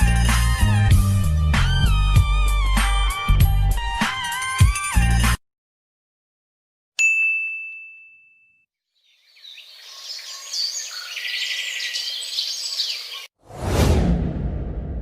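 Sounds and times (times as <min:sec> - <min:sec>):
bright bell ding: 0:07.0 - 0:08.6
birds chirping: 0:08.9 - 0:13.3
sudden loud low sound: 0:13.5 - 0:15.0.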